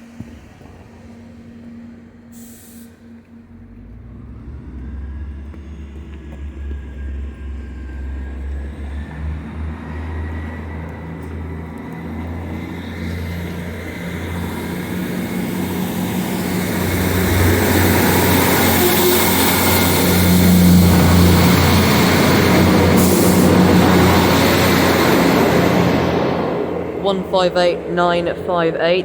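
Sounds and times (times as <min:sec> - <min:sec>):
train engine drone: 0:00.0 - 0:29.0
wheel and rail noise: 0:00.0 - 0:29.0.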